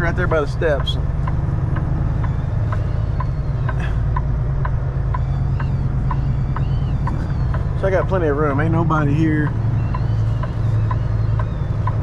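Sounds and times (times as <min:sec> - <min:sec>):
light regular ticking: 0:00.0 - 0:12.0
truck diesel engine idling: 0:00.0 - 0:12.0.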